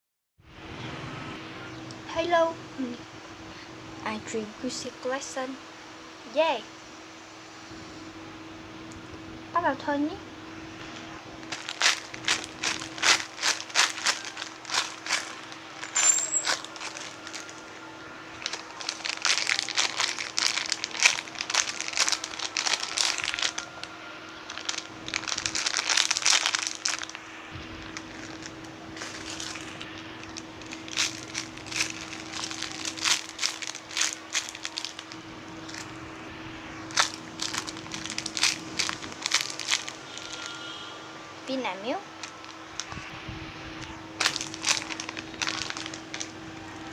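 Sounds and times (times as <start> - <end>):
faint steady hum: 0.4 - 46.9
plastic packaging crinkling: 11.0 - 36.0, 36.8 - 40.7, 42.1 - 43.2, 44.2 - 46.9.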